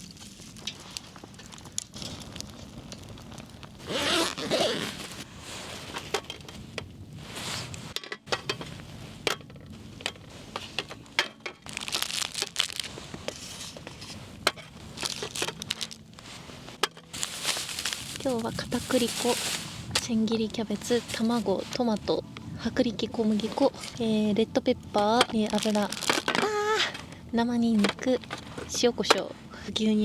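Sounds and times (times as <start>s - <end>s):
packaging rustling and crinkling: 0.0s - 21.8s, 25.0s - 29.3s
items knocking and clinking: 8.0s - 16.0s, 16.8s - 20.1s, 25.2s - 27.1s.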